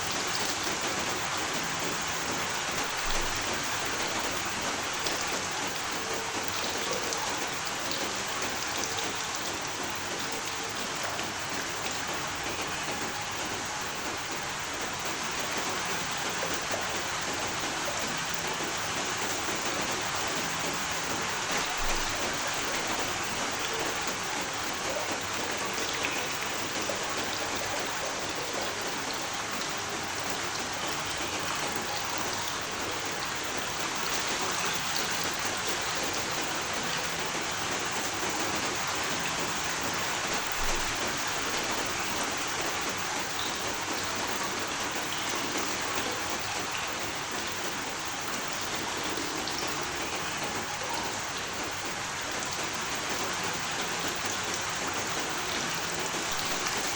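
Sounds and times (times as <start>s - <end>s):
steady rain hiss: 0.0s - 56.9s.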